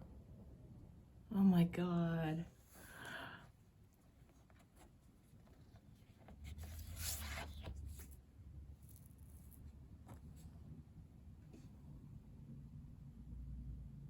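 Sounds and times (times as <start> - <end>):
photo paper rustling and sliding: 4.2 - 8.2.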